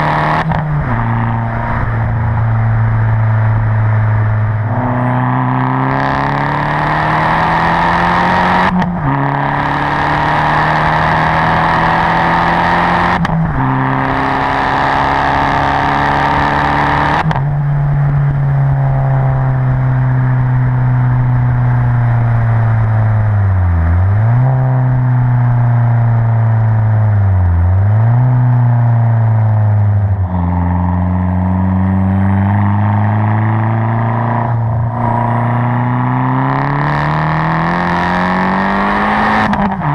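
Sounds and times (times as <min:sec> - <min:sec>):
turbocharged car engine accelerating: 0:00.0 - 0:39.9.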